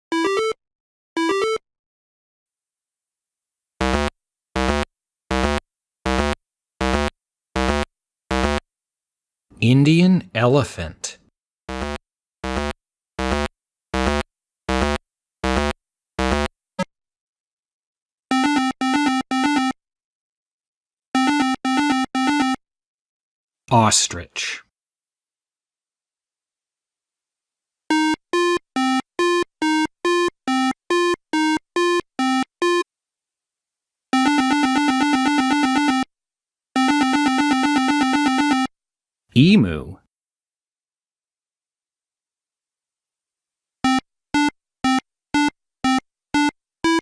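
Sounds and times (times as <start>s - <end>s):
buzzy synthesizer beeping tune: 3.8s - 8.6s, 11.7s - 16.5s.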